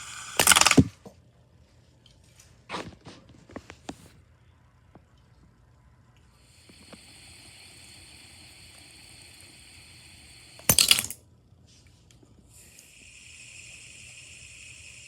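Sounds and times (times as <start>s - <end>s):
spinning toy whirring: 0.0s - 0.9s, 12.6s - 15.0s.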